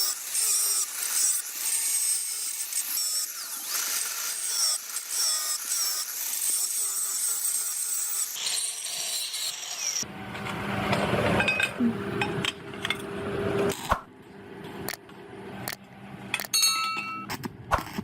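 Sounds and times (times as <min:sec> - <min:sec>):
metal tools clinking: 0:16.4 - 0:17.3.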